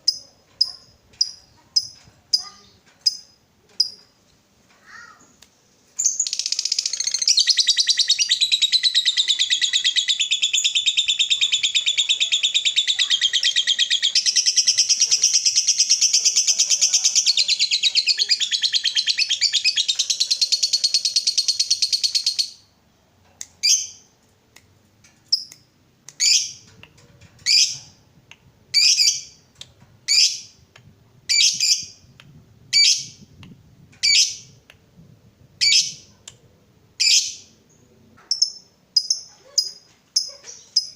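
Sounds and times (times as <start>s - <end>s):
lovebird chattering trill: 6.0s - 22.6s, 38.3s - 40.9s.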